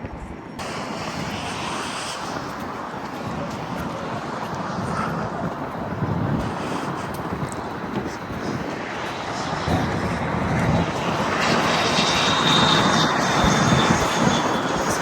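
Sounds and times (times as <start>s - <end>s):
steam hissing from a vent: 0.6s - 3.4s.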